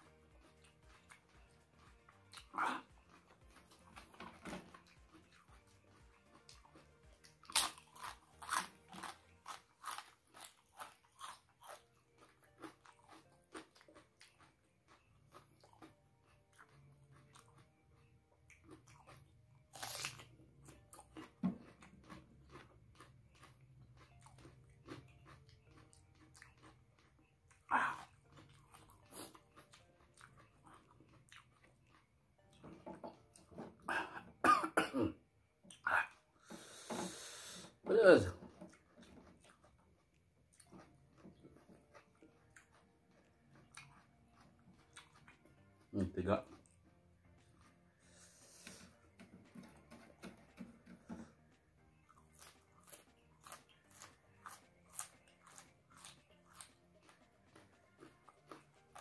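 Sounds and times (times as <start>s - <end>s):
person chewing crunchy food: 0.0s - 34.8s, 35.6s - 59.0s
soft mouth sounds: 2.3s - 4.3s, 35.7s - 39.6s.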